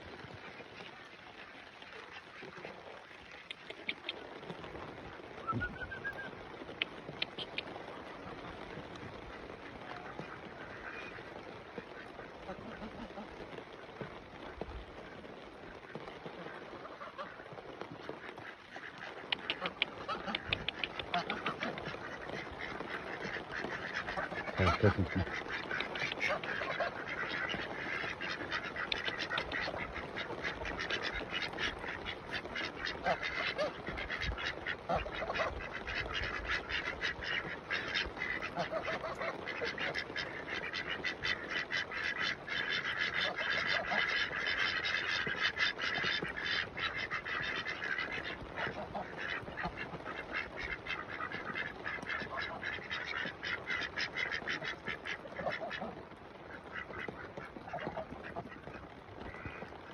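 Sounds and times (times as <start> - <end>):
ducks quacking: 0.3 - 15.2, 15.8 - 59.8
geese honking: 18.2 - 56.0.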